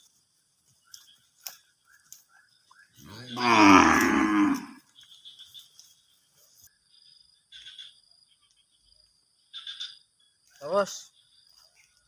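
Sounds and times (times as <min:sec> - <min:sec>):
faint high chirping: 0:00.0 - 0:12.0
cow mooing: 0:03.1 - 0:04.8.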